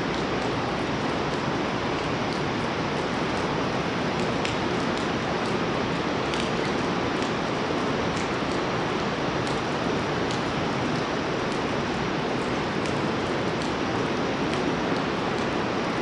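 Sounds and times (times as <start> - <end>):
heavy rain falling: 0.0 - 16.0
sharp drip ticks: 4.2 - 7.5, 8.1 - 8.7, 12.4 - 13.8.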